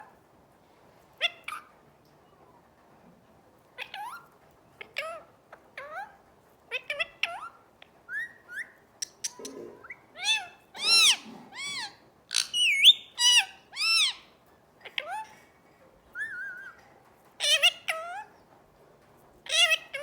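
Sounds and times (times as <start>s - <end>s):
parrot calling: 8.1s - 15.4s, 19.5s - 20.0s.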